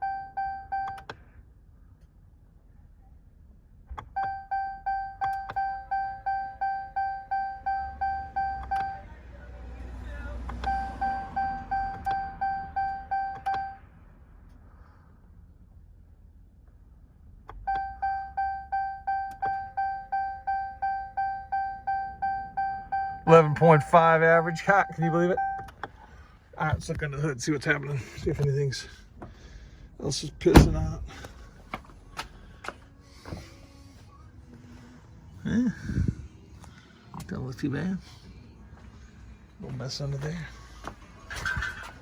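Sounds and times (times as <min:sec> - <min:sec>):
dashboard warning chime dinging: 0:00.0 - 0:01.1, 0:04.2 - 0:09.1, 0:10.5 - 0:13.8, 0:17.6 - 0:25.8
ignition key click: 0:12.8 - 0:13.7.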